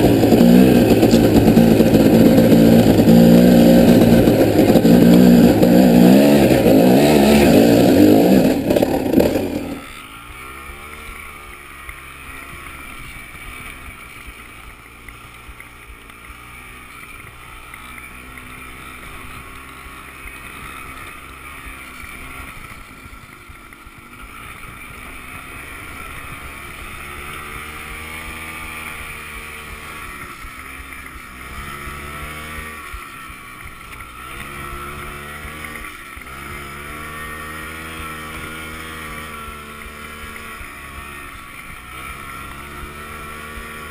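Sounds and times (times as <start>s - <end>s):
off-road engine revving: 0.0s - 43.9s.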